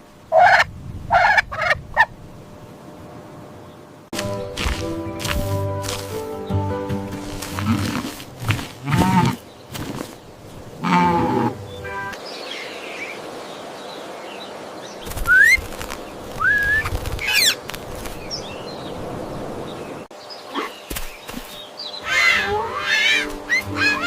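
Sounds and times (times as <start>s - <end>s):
background hiss: 1.8s - 24.0s
birds chirping: 3.5s - 24.0s
wings flapping: 7.1s - 10.3s, 15.0s - 18.4s, 20.9s - 24.0s.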